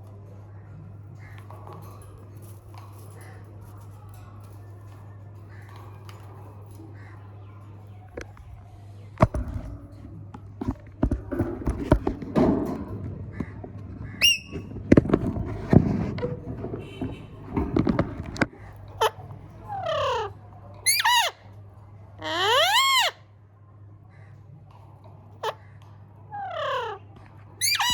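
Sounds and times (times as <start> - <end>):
low chattering sounds: 0.0 - 27.9
knocks and thumps: 9.2 - 18.6
parrot shrill call: 14.2 - 14.5, 19.7 - 21.4, 22.2 - 23.2, 27.6 - 27.9.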